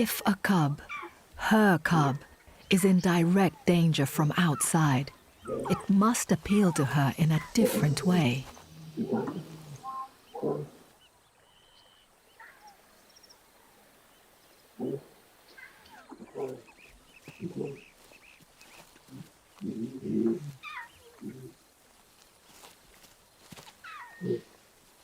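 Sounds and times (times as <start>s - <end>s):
lions calling: 0.8s - 10.9s, 14.8s - 17.9s, 19.0s - 21.6s.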